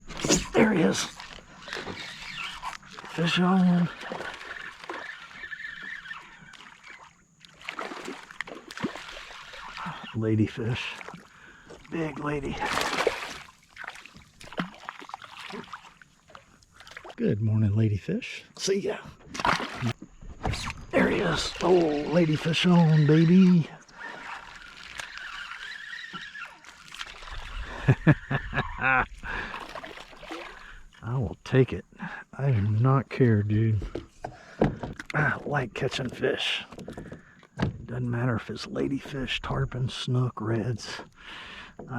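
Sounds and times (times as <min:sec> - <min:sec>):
water splashing: 0:00.0 - 0:17.2, 0:19.2 - 0:27.9, 0:29.2 - 0:30.9.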